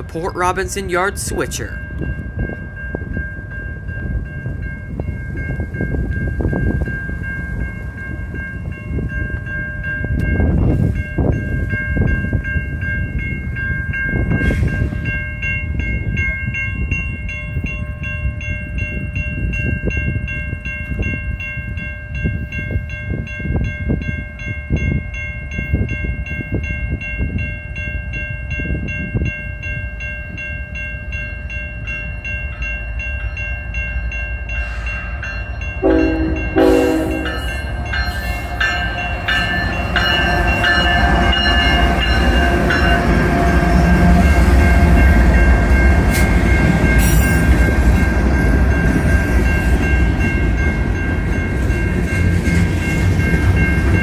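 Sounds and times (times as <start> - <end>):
freight train rumbling past: 0.0 - 54.0
high ringing tones: 15.0 - 54.0.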